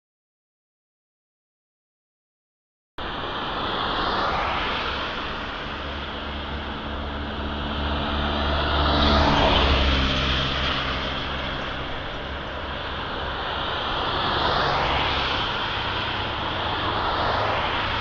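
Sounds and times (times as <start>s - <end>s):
road noise: 3.0s - 18.0s
vehicle engine: 5.8s - 18.0s.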